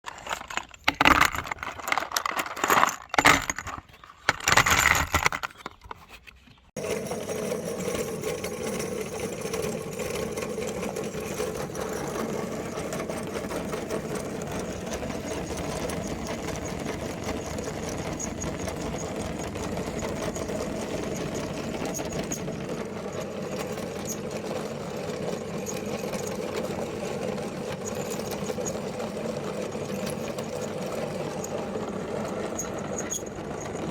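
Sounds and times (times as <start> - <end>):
loud crunching and knocking: 0.0 - 6.5.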